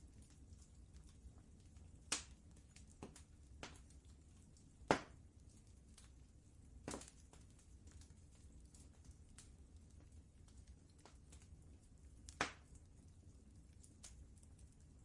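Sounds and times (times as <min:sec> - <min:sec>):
low steady rumble: 0:00.0 - 0:15.0
wood fire crackling: 0:00.0 - 0:15.0.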